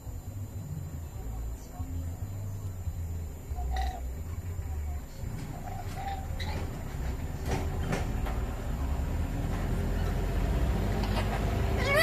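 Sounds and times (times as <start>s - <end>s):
steady low rumble: 0.0s - 11.9s
parrot squawk: 3.7s - 4.0s, 5.5s - 6.6s, 11.0s - 12.0s.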